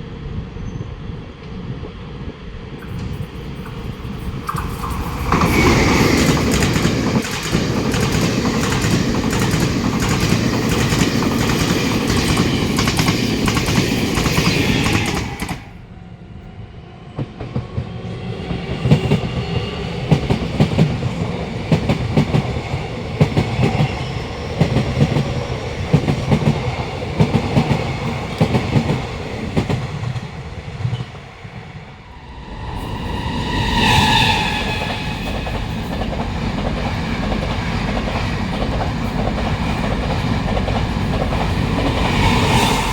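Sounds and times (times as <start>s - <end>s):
train wheels rushing on rail: 0.1s - 15.8s, 17.0s - 42.9s
train wheels clattering over rail joints: 2.8s - 15.6s.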